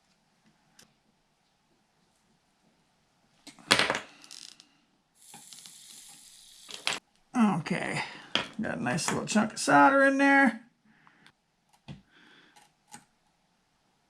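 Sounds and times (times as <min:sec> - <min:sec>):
flux hissing under soldering iron: 0:05.2 - 0:07.0.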